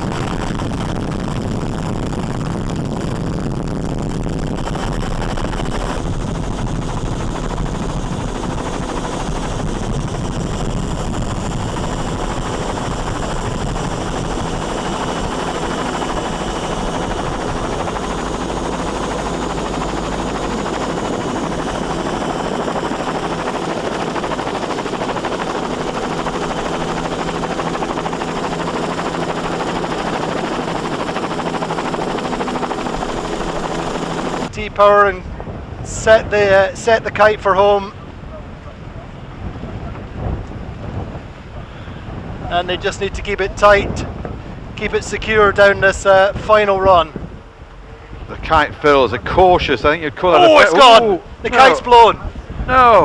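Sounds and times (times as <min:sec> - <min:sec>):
engine drone: 0:00.0 - 0:34.5
rushing wind and water: 0:00.0 - 0:53.0.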